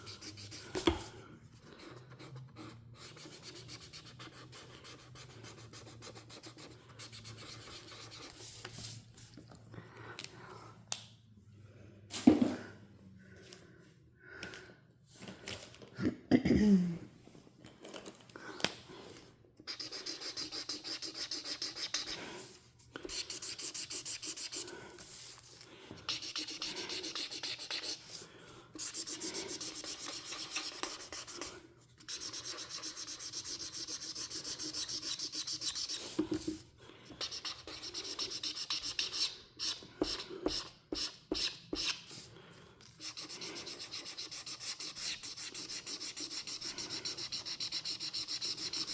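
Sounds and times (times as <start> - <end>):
marker scribbling on paper: 0.0 - 1.1, 1.8 - 9.0, 19.6 - 25.5, 26.1 - 28.2, 28.8 - 42.3, 43.0 - 48.9.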